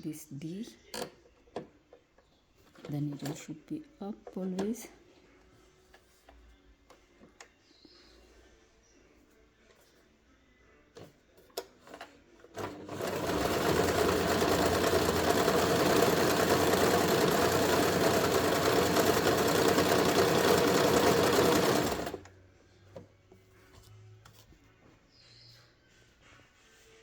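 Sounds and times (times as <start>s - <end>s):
sewing machine stitching: 11.9s - 22.3s.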